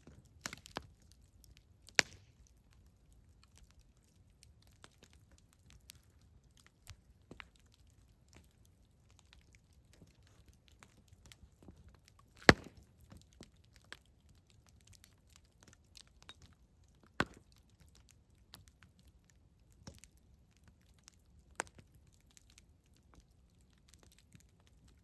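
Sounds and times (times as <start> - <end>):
campfire crackling: 0.0 - 25.0
sharp fire pops: 1.9 - 2.5, 12.3 - 13.1, 17.2 - 17.6.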